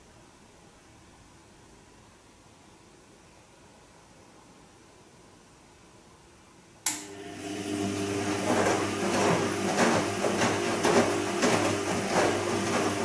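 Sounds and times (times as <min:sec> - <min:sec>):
washing machine motor hum: 0:06.9 - 0:13.0
wet laundry swishing: 0:08.2 - 0:13.0.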